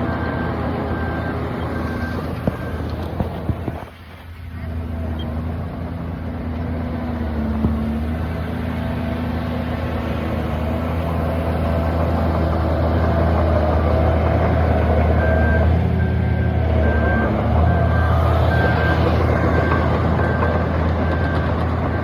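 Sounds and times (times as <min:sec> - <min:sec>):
reversing alarm beeping: 0:00.0 - 0:04.0, 0:10.9 - 0:22.0
heavy diesel engine running: 0:00.0 - 0:22.0.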